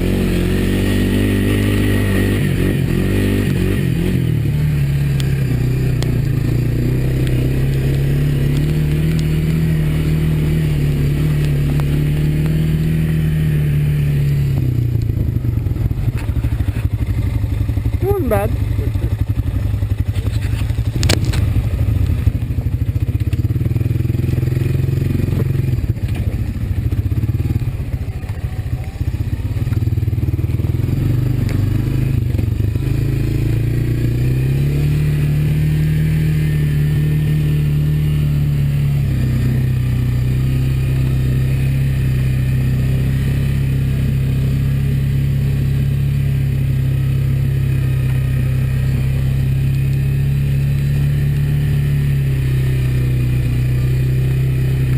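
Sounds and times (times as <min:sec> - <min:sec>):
atv engine running: 0:00.0 - 0:54.9
clatter and knocks over rough ground: 0:10.8 - 0:12.6, 0:20.1 - 0:23.5, 0:25.2 - 0:26.5.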